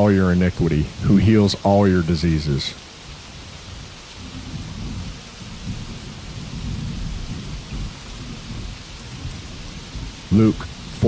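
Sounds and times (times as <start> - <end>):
rainfall hissing: 0.0 - 11.0
rolling thunder rumble: 3.7 - 11.0.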